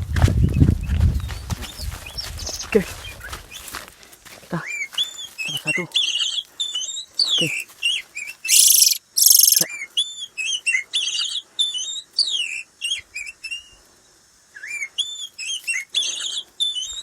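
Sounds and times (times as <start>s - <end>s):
bird whistled song phrases: 8.4s - 10.3s
loud harsh bird rasp: 8.5s - 9.7s.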